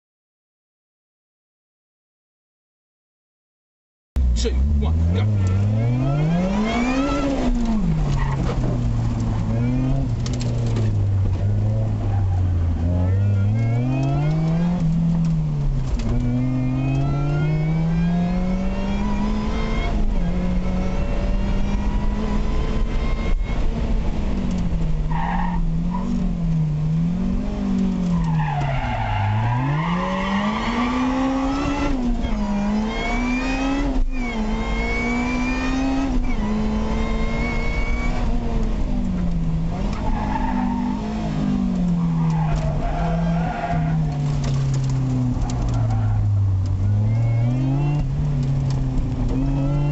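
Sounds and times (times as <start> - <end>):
car engine revving at full throttle: 4.2 - 49.9.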